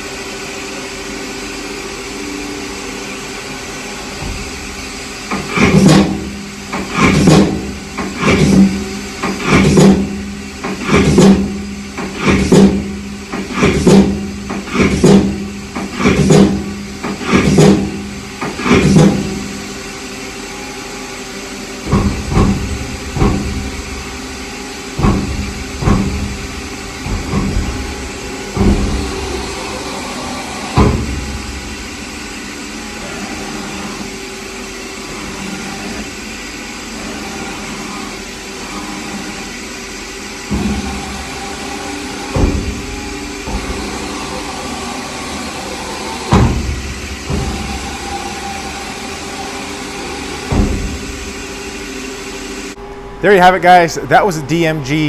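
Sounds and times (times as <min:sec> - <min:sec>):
machine hum with tones: 0:00.0 - 0:55.0.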